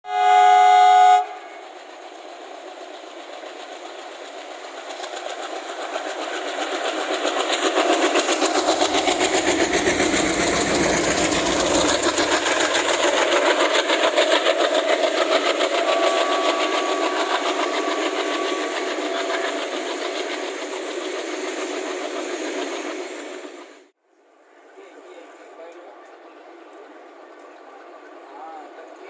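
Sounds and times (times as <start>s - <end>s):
diesel locomotive engine chugging: 0.1s - 23.9s, 24.5s - 29.0s.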